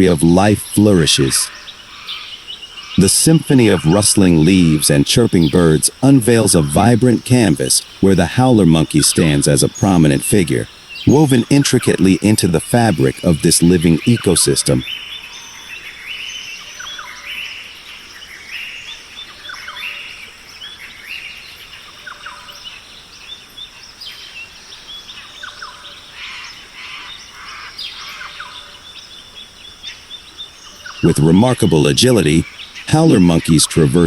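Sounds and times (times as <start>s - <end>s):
birds chirping and calling: 0.0s - 34.0s.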